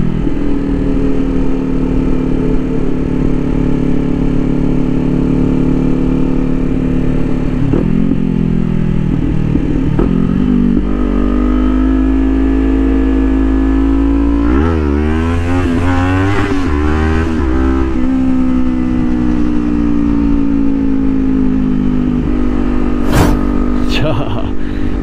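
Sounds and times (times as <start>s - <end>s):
motorcycle engine revving: 0.0s - 24.7s
rush of noise: 23.0s - 24.8s.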